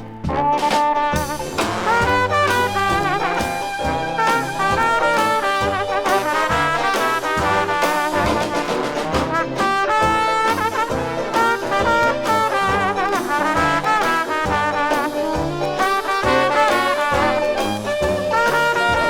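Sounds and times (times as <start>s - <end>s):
jazz band playing: 0.0s - 19.0s.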